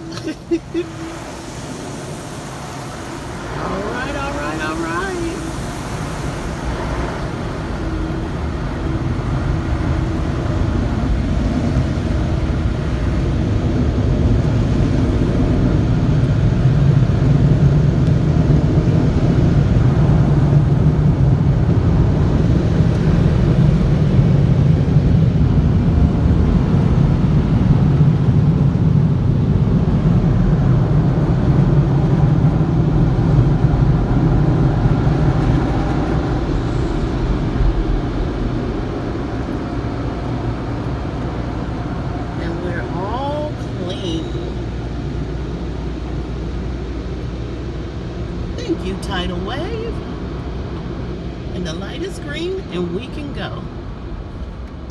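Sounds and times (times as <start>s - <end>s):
car wash machinery rumble: 0.0s - 54.9s.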